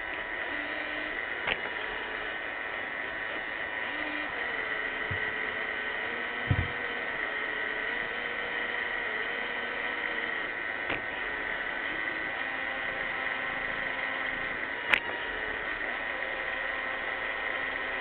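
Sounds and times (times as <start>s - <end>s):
robot vacuum running: 0.0s - 18.0s
short knock: 6.5s - 6.8s.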